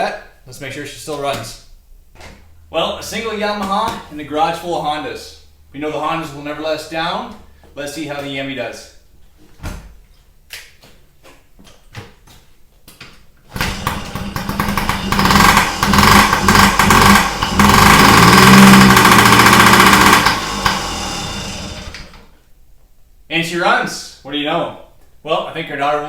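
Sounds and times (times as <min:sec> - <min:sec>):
two-stroke engine revving: 0:13.5 - 0:22.3.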